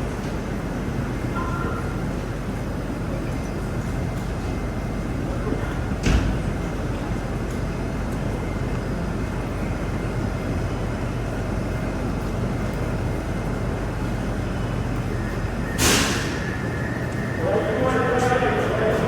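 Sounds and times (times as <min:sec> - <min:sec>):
metro train rumble and hum: 0:00.0 - 0:19.0
air hiss: 0:15.8 - 0:16.4.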